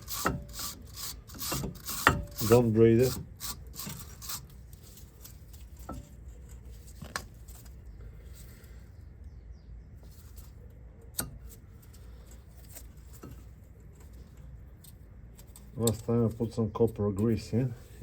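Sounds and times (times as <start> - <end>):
wire brush scratching metal: 0.0 - 7.6.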